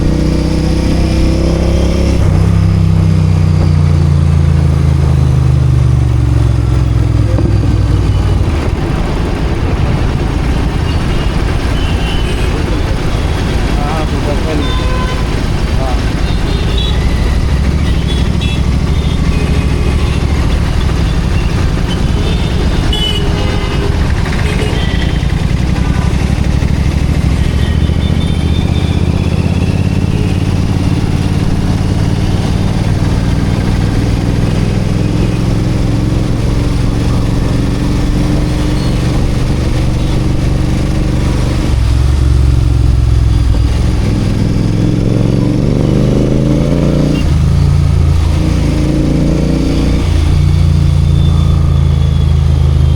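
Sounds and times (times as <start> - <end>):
motorcycle engine and exhaust: 0.0 - 52.9.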